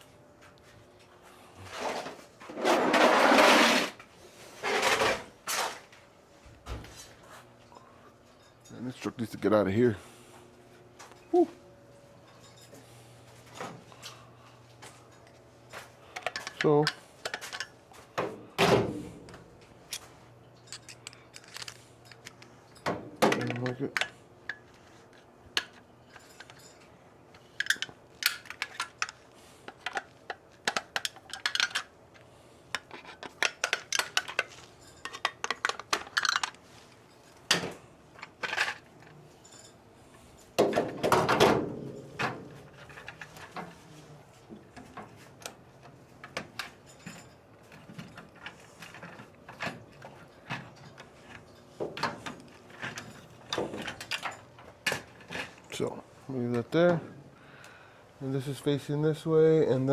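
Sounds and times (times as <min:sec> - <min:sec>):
tools and metal parts clinking: 0:06.9 - 0:09.4, 0:12.1 - 0:55.9.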